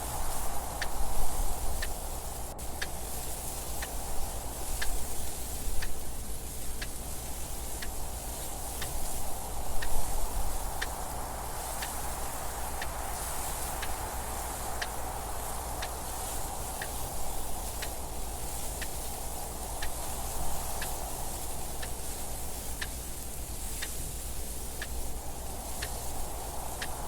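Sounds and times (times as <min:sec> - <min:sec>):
rushing wind noise: 0:00.0 - 0:27.0
clock ticking: 0:24.8 - 0:25.0.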